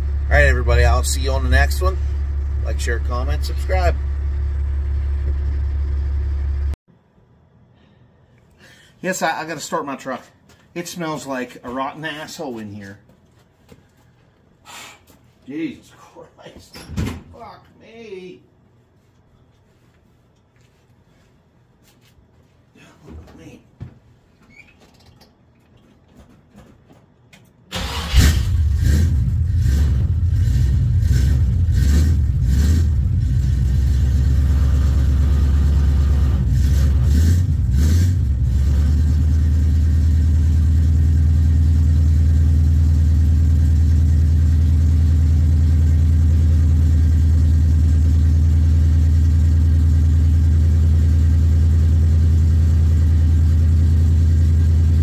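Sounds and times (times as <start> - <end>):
engine idling: 0.0 - 6.8, 29.4 - 55.0
pickup engine starting and revving: 0.0 - 6.8, 27.7 - 55.0.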